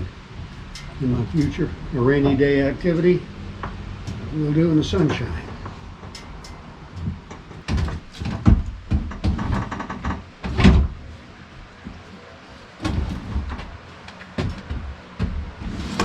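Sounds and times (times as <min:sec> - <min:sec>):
clunks and knocks of parts: 0:04.9 - 0:11.1, 0:12.8 - 0:16.0.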